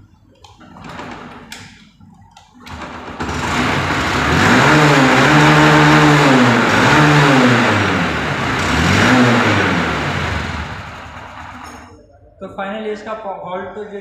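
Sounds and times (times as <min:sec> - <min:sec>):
motorcycle engine starting and revving: 0:02.6 - 0:11.9.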